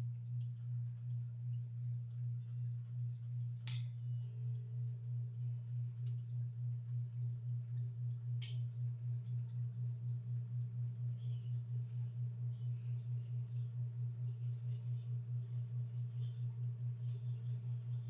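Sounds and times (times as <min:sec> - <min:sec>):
ceiling fan motor humming: 0:00.0 - 0:18.0
light ticks: 0:03.6 - 0:04.0, 0:05.4 - 0:06.5, 0:07.6 - 0:08.8.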